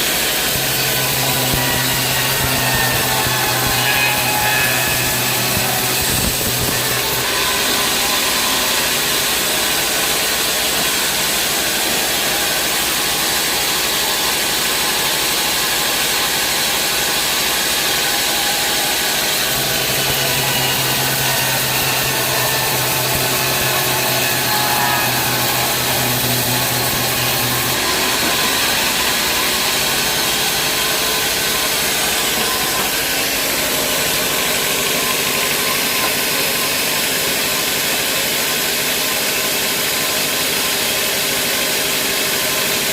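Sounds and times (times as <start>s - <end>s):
band saw cutting log: 0.0s - 42.9s
low motor hum: 0.4s - 10.0s.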